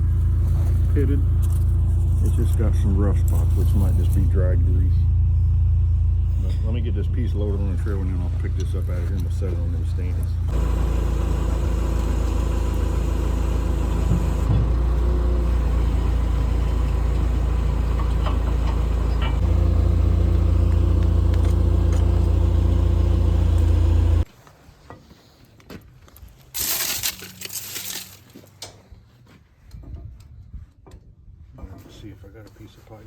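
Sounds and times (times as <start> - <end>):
skid steer engine running: 0.0 - 24.3.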